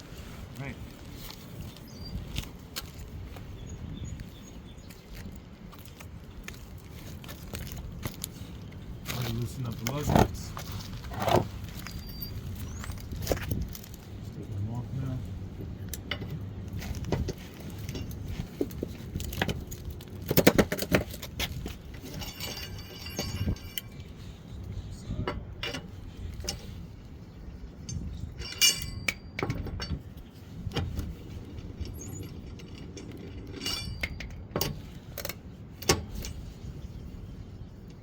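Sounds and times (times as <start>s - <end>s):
metal clinks and knocks: 15.9s - 24.2s, 25.2s - 26.8s, 27.8s - 30.1s, 30.7s - 36.6s.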